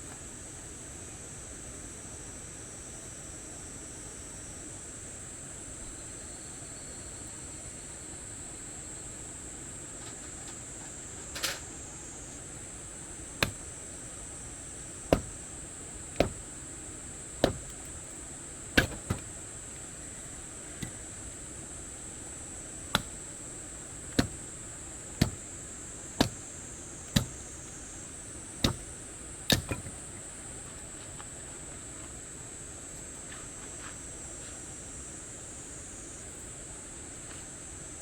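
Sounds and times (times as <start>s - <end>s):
firewood being chopped: 13.1s - 30.2s.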